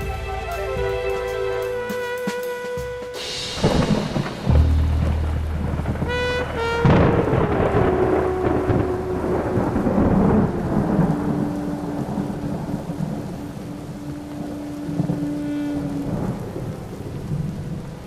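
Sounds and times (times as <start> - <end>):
heavy rain: 0.0 - 18.0
thunder rumbling: 0.0 - 18.0
low tone stepping down: 3.3 - 10.5.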